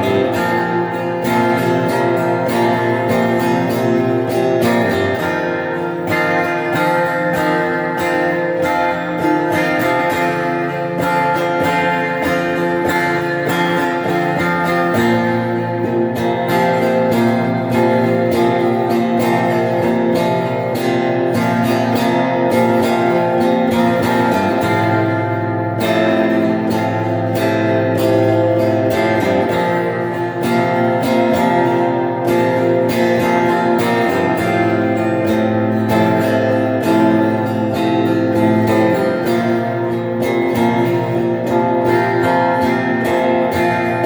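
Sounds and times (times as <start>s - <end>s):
electric guitar strumming chords: 0.0s - 44.0s.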